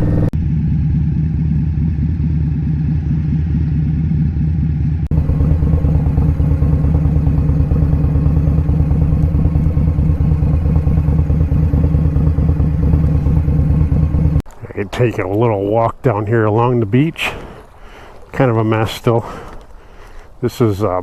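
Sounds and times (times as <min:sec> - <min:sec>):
motorcycle engine running: 0:00.0 - 0:14.9.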